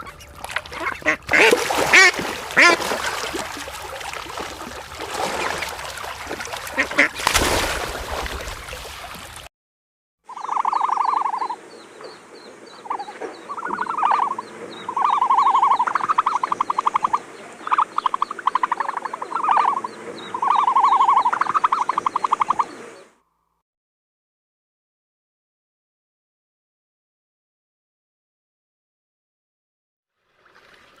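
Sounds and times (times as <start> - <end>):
animal pulsed trills: 10.3 - 11.6.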